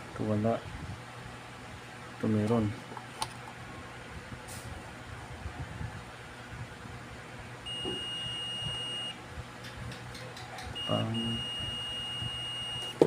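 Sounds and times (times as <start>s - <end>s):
multimeter beeping: 7.7s - 9.2s, 10.7s - 13.0s.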